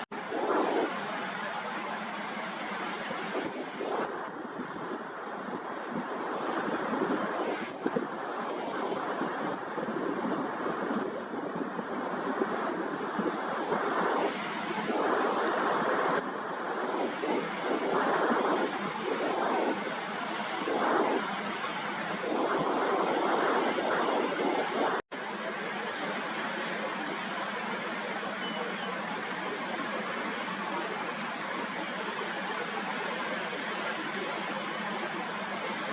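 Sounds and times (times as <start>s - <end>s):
wind buffeting microphone: 0.0s - 25.0s
rough sea surf breaking: 0.0s - 35.9s.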